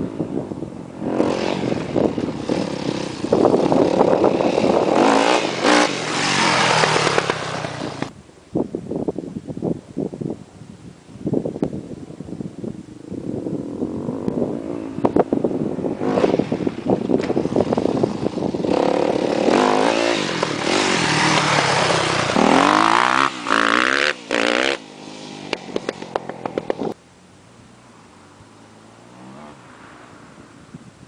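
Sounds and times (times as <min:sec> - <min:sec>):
dirt bike engine revving: 0:01.0 - 0:08.1, 0:13.8 - 0:27.0.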